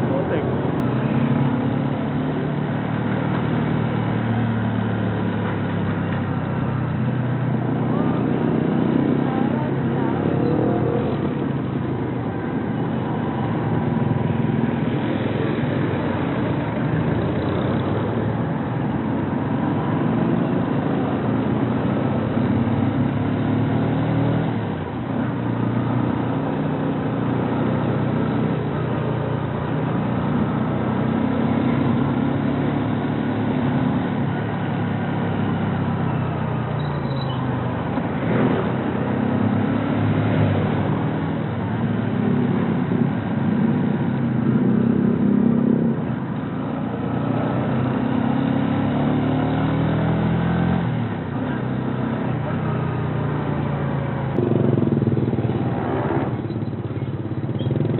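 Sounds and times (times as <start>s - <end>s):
motorcycle engine running: 51.0s - 57.9s.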